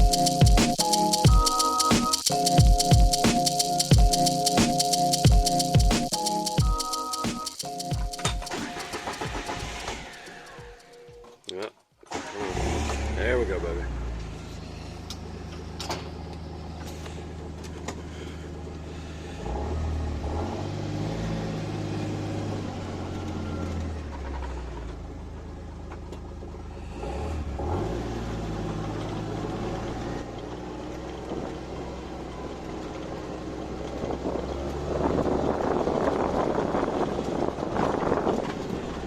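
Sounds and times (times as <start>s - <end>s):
vehicle engine revving: 18.9s - 24.8s, 26.8s - 30.3s.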